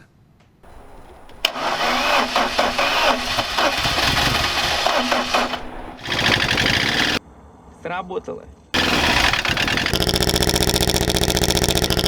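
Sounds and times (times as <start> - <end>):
starter motor cranking engine: 0.7 - 7.2, 8.8 - 12.0.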